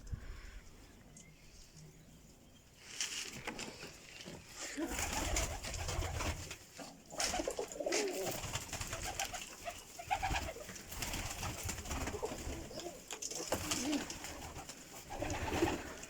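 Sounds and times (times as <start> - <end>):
pigeons cooing: 7.1 - 16.0.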